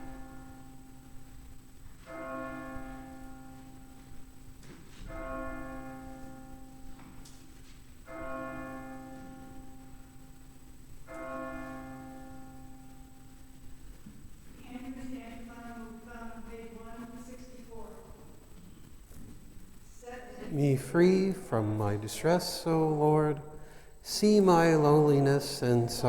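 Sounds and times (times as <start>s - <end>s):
church bell tolling: 0.0s - 13.8s.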